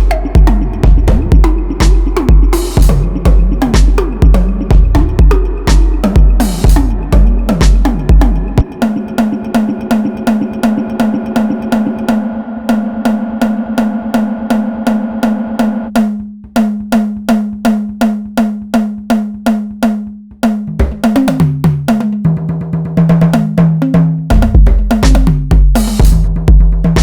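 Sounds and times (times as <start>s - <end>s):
deep low bass: 0.0s - 8.7s
stepping bass line: 0.0s - 21.9s, 24.3s - 27.0s
cowbell-like drum machine hit: 0.0s - 22.3s, 23.2s - 27.0s.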